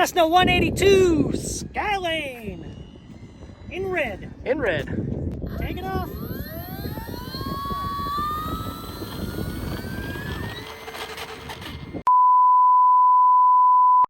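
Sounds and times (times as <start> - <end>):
wind noise: 0.0 - 12.1
model airplane motor whining: 5.4 - 12.1.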